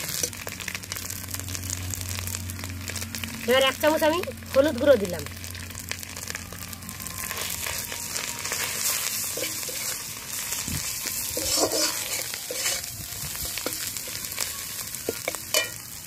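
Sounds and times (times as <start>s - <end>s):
food sizzling in hot oil: 0.0s - 16.0s
metal spatula scraping pan: 8.5s - 10.2s, 11.2s - 12.9s, 15.1s - 15.8s.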